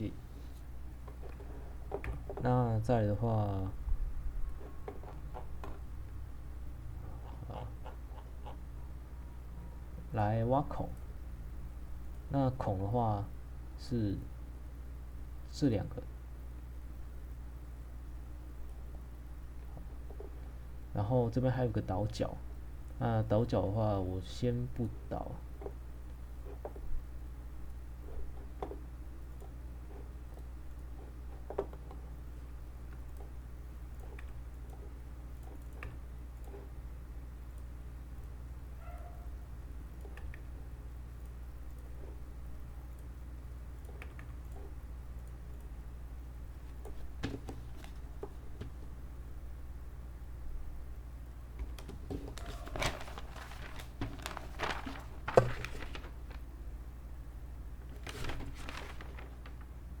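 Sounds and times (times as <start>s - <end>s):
low electrical hum: 0.0s - 60.0s
computer mouse clicks: 40.0s - 40.5s, 43.7s - 45.7s
desk handling rustles: 46.9s - 48.9s, 51.6s - 56.4s, 57.9s - 59.7s.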